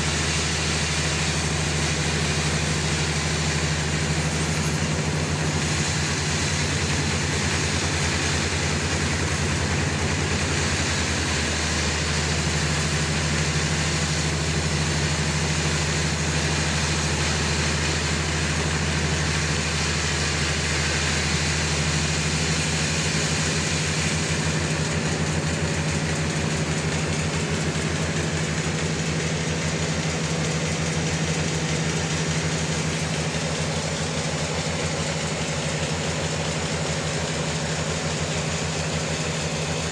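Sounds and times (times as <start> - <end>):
saw rushing noise: 0.0 - 39.9
sawmill engine humming: 0.0 - 39.9.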